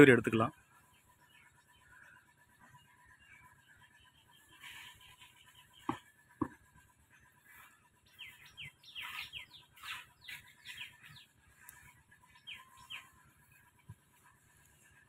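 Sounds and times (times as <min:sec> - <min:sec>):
bird downward-sliding chirps: 0:07.5 - 0:13.6.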